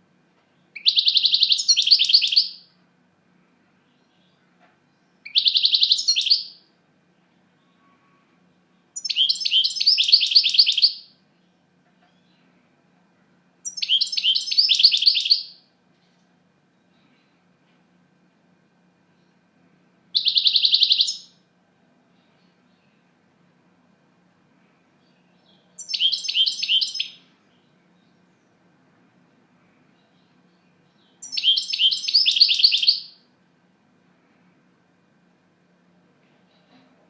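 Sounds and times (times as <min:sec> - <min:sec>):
finch singing high twittering song: 0:00.8 - 0:02.6, 0:05.2 - 0:06.6, 0:09.0 - 0:11.1, 0:13.6 - 0:15.6, 0:20.2 - 0:21.4, 0:25.0 - 0:28.5, 0:30.0 - 0:33.2.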